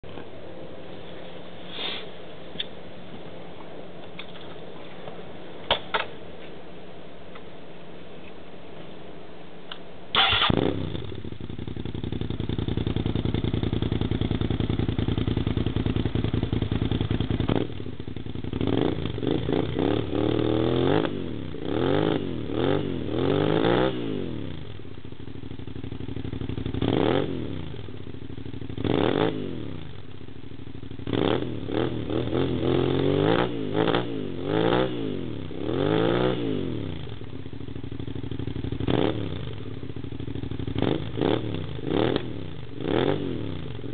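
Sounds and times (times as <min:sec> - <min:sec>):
motorcycle engine idling and revving: 0:10.2 - 0:43.9.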